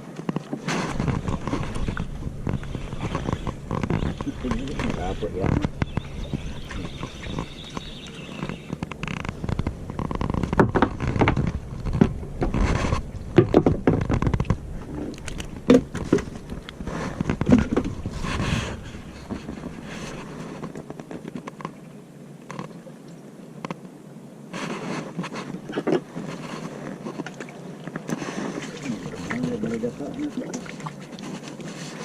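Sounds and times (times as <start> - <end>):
scraping rustling and knocking: 0.2 - 21.8.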